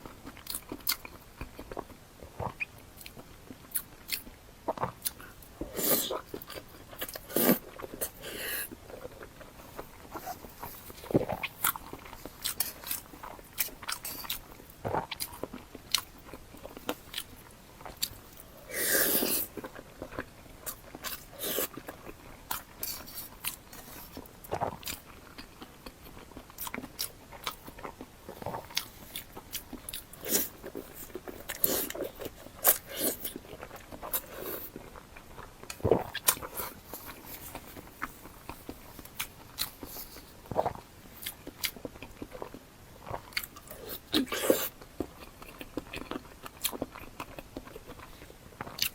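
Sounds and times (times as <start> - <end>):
person chewing: 0.0 - 48.9.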